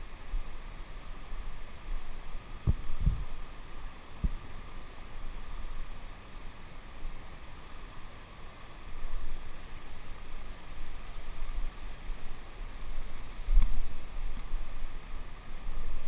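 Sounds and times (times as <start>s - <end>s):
river water flowing: 0.0s - 16.0s
wind buffeting microphone: 2.6s - 3.4s.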